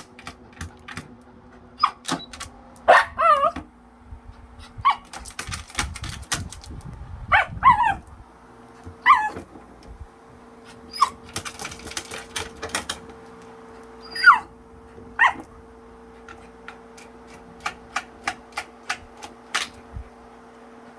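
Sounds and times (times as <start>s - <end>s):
electric fan hum: 0.0s - 20.9s
dog yelping and whining: 1.7s - 3.7s, 4.6s - 5.2s, 7.3s - 8.1s, 9.0s - 9.5s, 10.7s - 11.8s, 14.0s - 14.6s, 15.2s - 15.6s.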